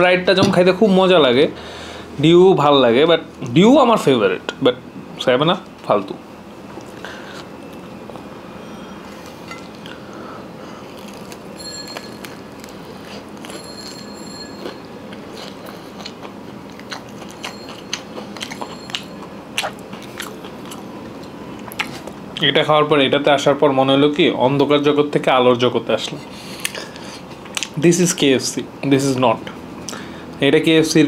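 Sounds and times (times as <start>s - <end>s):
crunchy fried chicken chewing: 9.0s - 22.2s.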